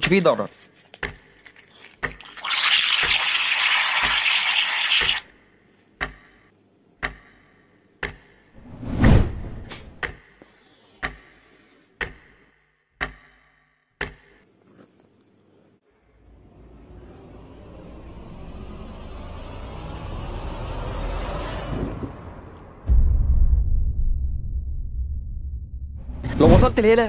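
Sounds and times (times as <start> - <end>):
clock-like ticks: 8.0 - 8.3
low boom: 22.8 - 27.0.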